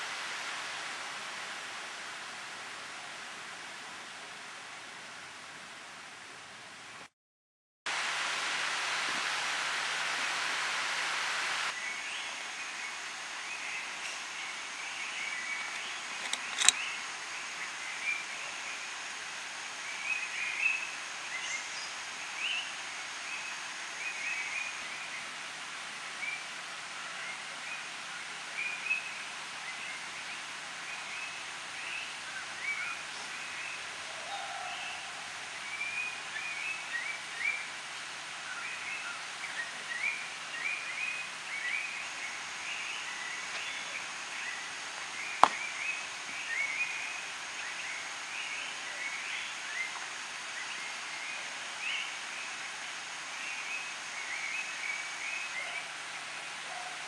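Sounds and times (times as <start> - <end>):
background hiss: 0.0 - 7.1, 7.9 - 57.0
sharp click: 15.8 - 16.8
birds chirping: 27.2 - 55.9.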